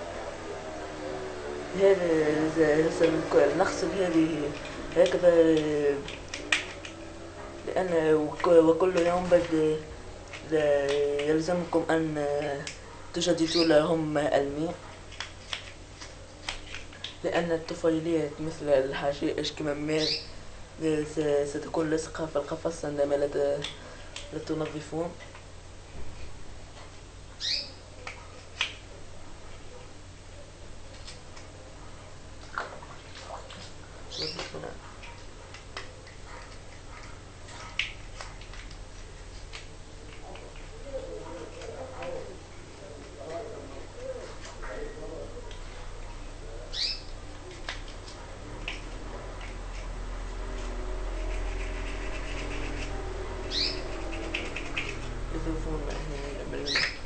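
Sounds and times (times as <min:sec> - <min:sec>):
steady low hum: 0:00.0 - 0:57.0
songbird chirp: 0:13.3 - 0:13.9, 0:19.8 - 0:20.4, 0:27.4 - 0:27.9, 0:34.1 - 0:34.7, 0:43.3 - 0:47.7, 0:52.1 - 0:57.0
brush scrubbing: 0:47.5 - 0:56.6.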